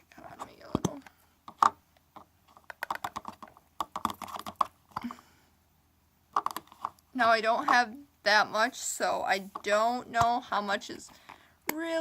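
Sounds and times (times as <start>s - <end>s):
plastic glue bottle clicks and sputters: 0.7s - 5.1s, 6.4s - 7.0s.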